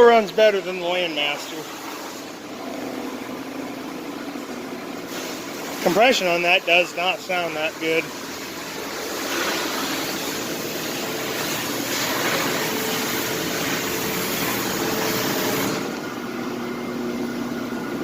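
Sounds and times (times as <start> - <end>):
pressure washer engine running: 0.0 - 18.0
pressure washer spray hissing: 1.0 - 2.4, 5.0 - 15.9.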